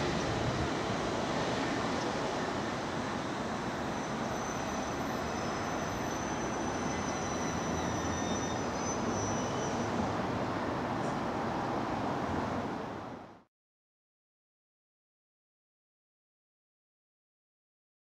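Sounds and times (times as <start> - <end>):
electric train slowing to a stop: 0.0 - 10.3
high-pitched train whine: 0.0 - 10.5.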